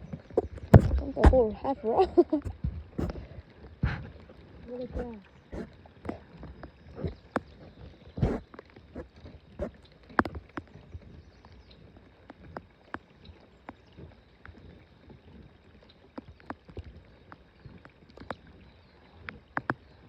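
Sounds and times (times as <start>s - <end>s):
light taps and knocks on boat: 0.0s - 1.6s.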